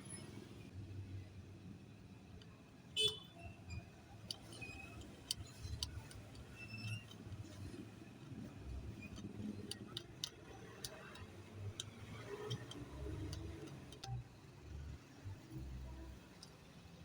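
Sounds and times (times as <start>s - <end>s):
small hard objects clicking: 9.1s - 14.2s.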